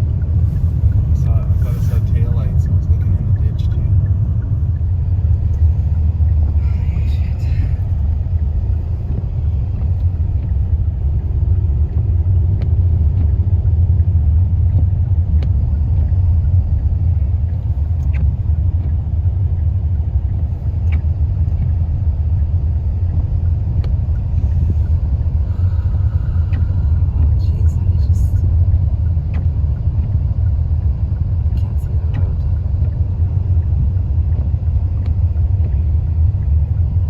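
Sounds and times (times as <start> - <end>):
road and engine rumble in car: 0.0 - 37.0
faint tick: 22.4 - 27.4.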